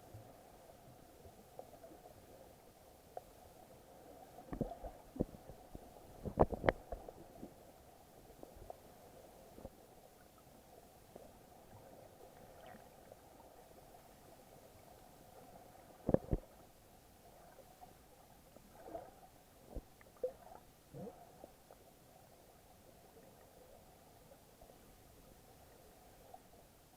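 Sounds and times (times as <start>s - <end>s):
knocks underwater: 6.2s - 7.0s.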